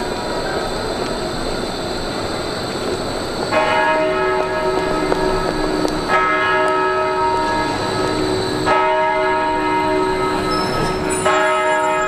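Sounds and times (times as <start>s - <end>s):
large bell tolling: 3.5s - 12.0s.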